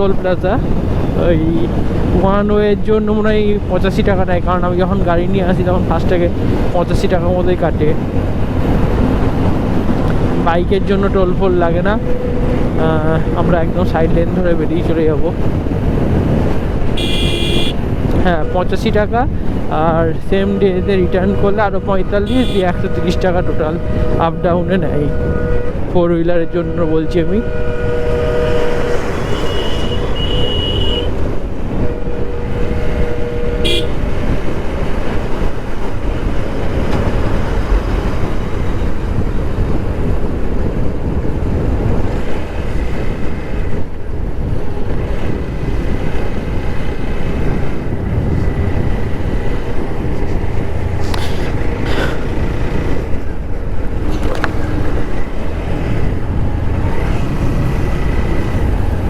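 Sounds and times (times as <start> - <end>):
motorcycle wind and road rush: 0.0 - 59.0
vehicle horns: 16.9 - 18.6, 20.4 - 25.9, 26.6 - 34.5.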